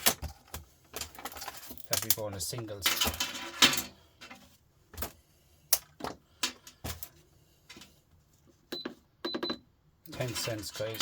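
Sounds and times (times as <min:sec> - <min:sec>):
scrap metal clicking and clinking: 0:01.0 - 0:04.4.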